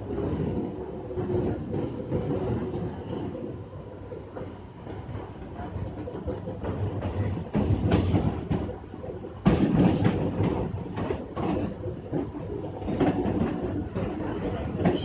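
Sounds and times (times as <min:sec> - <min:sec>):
train wheels clattering over rails: 0:04.3 - 0:15.0.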